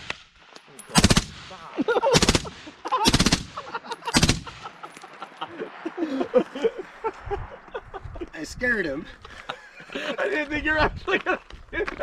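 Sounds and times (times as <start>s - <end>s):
automatic gunfire bursts: 1.0s - 1.5s, 2.1s - 4.6s.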